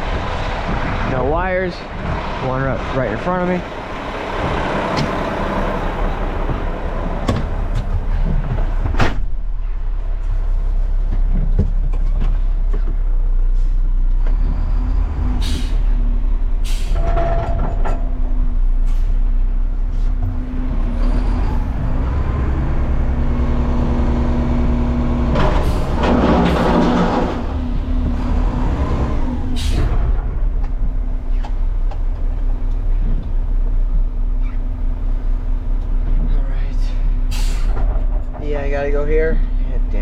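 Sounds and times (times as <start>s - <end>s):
garbage truck diesel engine: 0.0s - 40.0s
sharp knocks: 6.4s - 9.3s.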